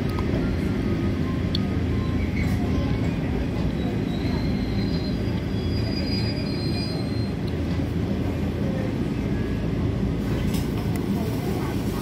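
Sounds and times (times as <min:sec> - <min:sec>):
train wheels rumbling on rails: 0:00.0 - 0:12.0
high wheel squeal: 0:03.7 - 0:07.5.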